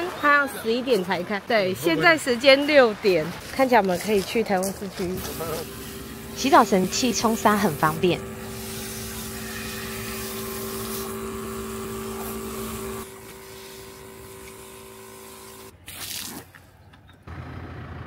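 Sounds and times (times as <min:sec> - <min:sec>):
portable pump humming: 0:00.0 - 0:15.8
water spraying: 0:03.4 - 0:16.6.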